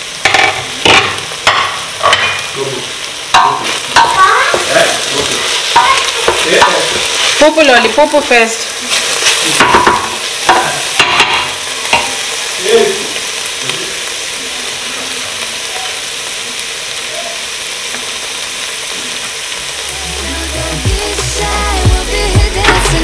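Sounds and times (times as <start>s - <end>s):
vegetables sizzling in a pot: 0.0s - 23.0s
wooden spoon knocking on pot: 0.2s - 2.5s, 3.3s - 4.7s, 9.6s - 12.2s.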